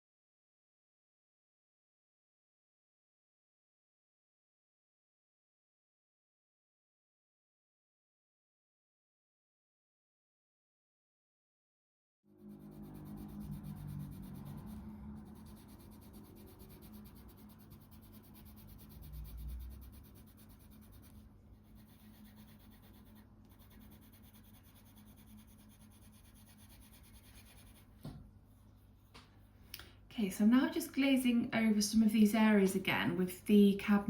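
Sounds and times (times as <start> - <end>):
low steady hum: 12.3 - 34.0
pencil scratching on paper: 12.4 - 28.0.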